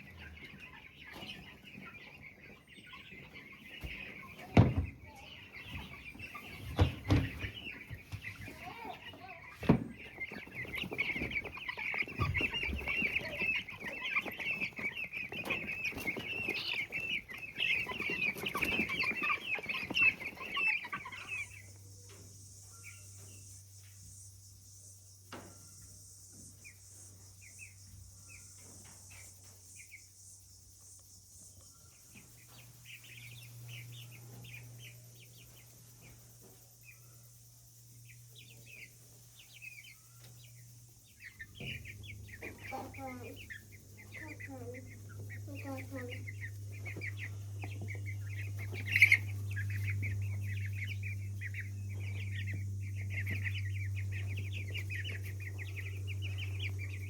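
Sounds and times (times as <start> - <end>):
scratching in wood shavings: 0.0 - 24.0
baby chicks cheeping: 0.0 - 57.0
low steady hum and hiss: 5.1 - 57.0.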